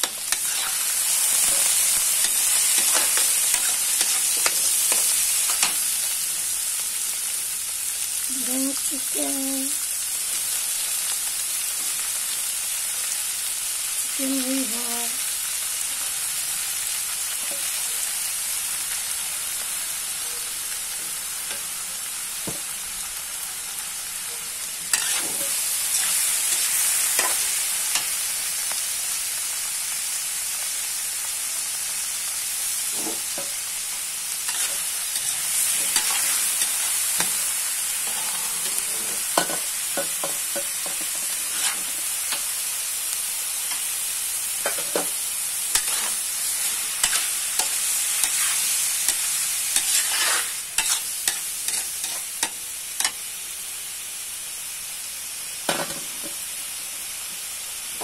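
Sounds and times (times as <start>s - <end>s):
food sizzling in a wok: 0.0s - 58.0s
metal spatula scraping pan: 24.9s - 26.2s, 34.5s - 36.6s, 40.6s - 42.0s, 45.7s - 49.2s, 49.8s - 52.2s.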